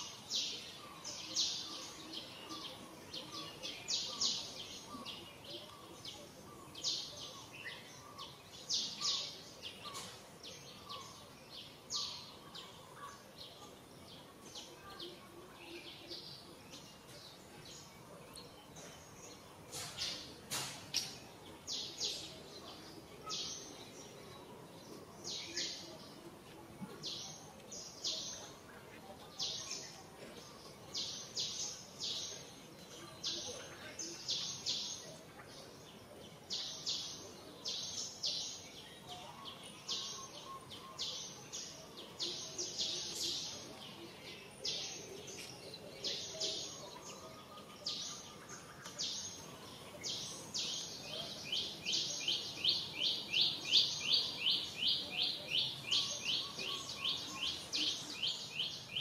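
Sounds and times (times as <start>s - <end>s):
faint outdoor background noise: 0.0s - 59.0s
bird chirping: 15.6s - 59.0s.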